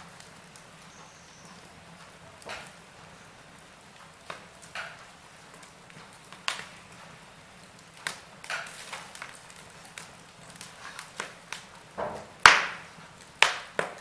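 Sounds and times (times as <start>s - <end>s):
faint steady hiss: 0.0s - 14.0s
wood fire crackling: 0.0s - 14.0s.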